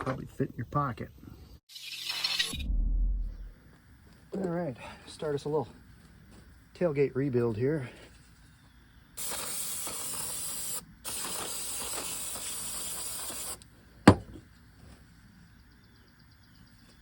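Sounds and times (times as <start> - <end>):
aerosol spray hissing: 9.2 - 13.6
sharp knock: 14.1 - 14.4.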